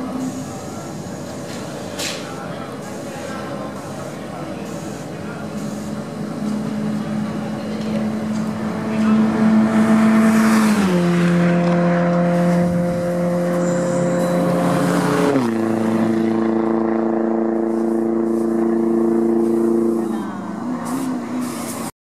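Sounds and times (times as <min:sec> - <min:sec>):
race car engine running: 0:04.5 - 0:21.8.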